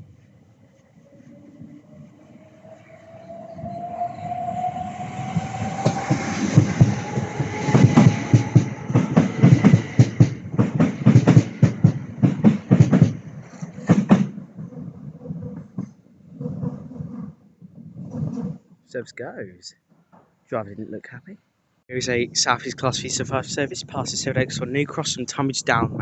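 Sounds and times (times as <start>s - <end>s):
train motor whine: 1.0s - 13.2s
wheels clacking over rail joints: 5.3s - 14.7s.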